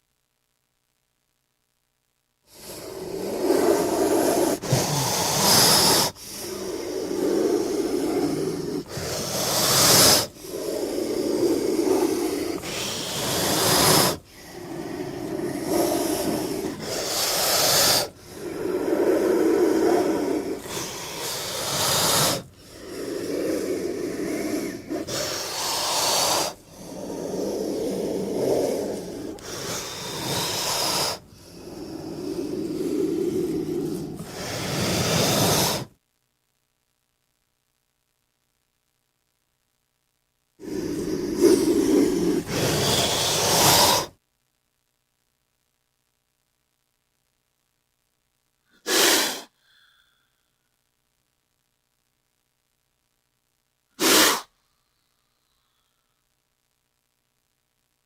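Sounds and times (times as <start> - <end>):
snake hissing: 2.5 - 35.9, 40.6 - 44.2, 48.8 - 50.2, 54.0 - 54.5.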